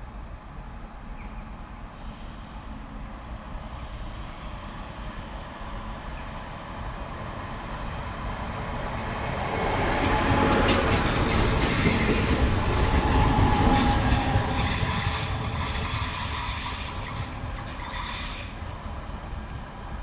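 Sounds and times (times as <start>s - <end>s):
train rolling: 7.3s - 20.0s
train wheels clacking over rail joints: 10.0s - 18.6s.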